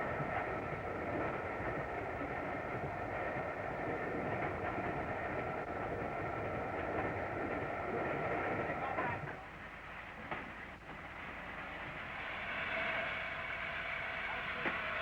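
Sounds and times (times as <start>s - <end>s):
steam train running: 0.0s - 15.0s.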